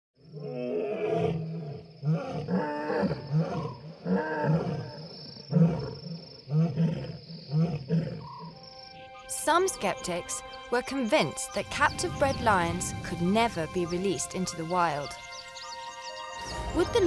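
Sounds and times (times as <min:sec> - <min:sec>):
lion roaring: 0:00.3 - 0:08.3.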